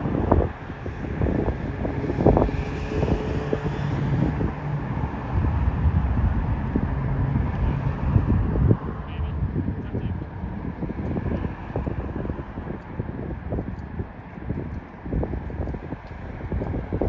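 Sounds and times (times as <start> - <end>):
road traffic noise: 0.0 - 17.0
wind buffeting microphone: 0.0 - 17.0.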